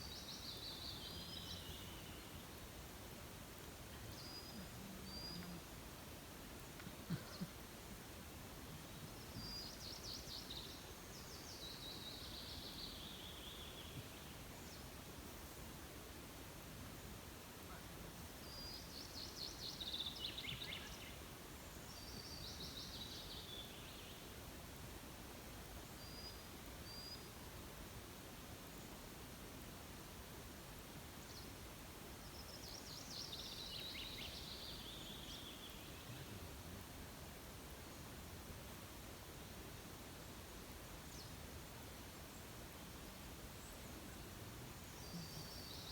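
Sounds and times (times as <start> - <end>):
songbird singing: 0.0 - 2.9, 3.7 - 5.8, 8.6 - 15.6, 17.0 - 24.4, 25.9 - 27.5, 32.2 - 37.1, 42.2 - 45.9
faint background hiss: 0.0 - 45.9
songbird high-pitched song: 32.2 - 36.2.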